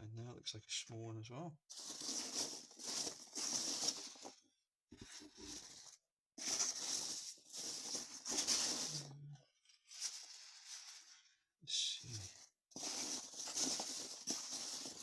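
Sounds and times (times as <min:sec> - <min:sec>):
packing material rustling: 0:01.7 - 0:04.4, 0:05.0 - 0:09.2, 0:09.9 - 0:11.2, 0:12.2 - 0:15.0.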